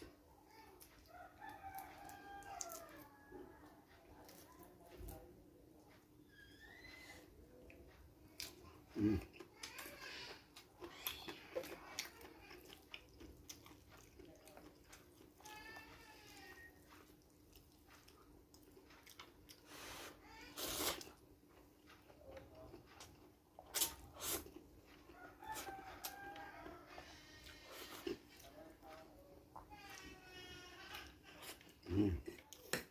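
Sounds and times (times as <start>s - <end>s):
clicks and crunches of eating: 0.5s - 3.2s, 4.0s - 5.2s, 7.9s - 19.7s, 20.5s - 30.2s
faint rooster crowing: 0.6s - 3.9s, 24.9s - 28.1s.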